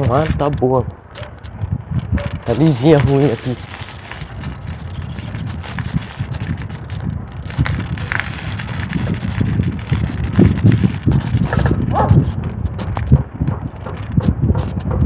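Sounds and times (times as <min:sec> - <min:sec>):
faint road and bike noise: 0:00.0 - 0:15.0
wind buffeting microphone: 0:00.0 - 0:15.0.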